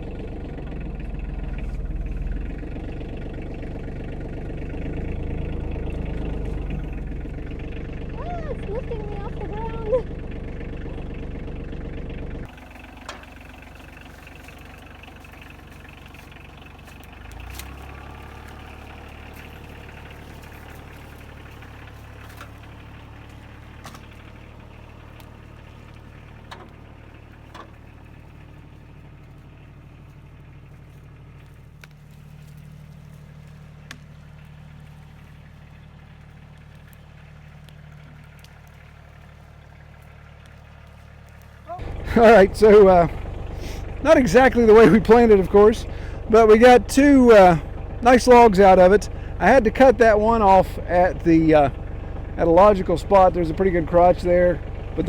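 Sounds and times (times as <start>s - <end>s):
tractor engine running: 0.0s - 55.0s
sharp clicks and knocks: 25.1s - 26.8s, 27.4s - 27.8s.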